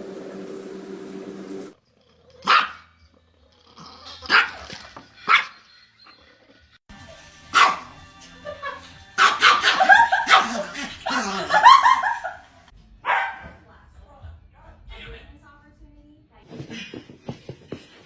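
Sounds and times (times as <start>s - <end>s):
dog barking: 2.4s - 2.9s, 4.3s - 4.7s, 5.3s - 5.6s, 7.5s - 8.0s, 9.2s - 12.3s, 13.0s - 13.5s.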